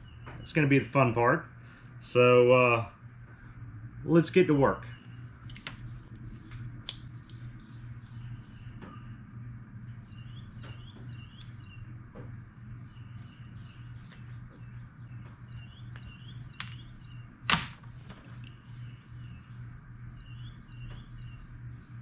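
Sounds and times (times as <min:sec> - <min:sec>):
small birds chirping: 0:00.0 - 0:02.3, 0:04.6 - 0:22.0
steady low hum: 0:00.0 - 0:22.0
wire clicking: 0:05.4 - 0:07.8, 0:15.9 - 0:16.8.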